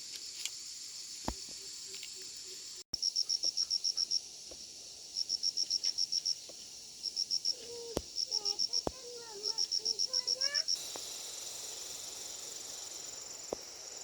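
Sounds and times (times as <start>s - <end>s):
cricket-like insect chirping: 0.0s - 14.0s.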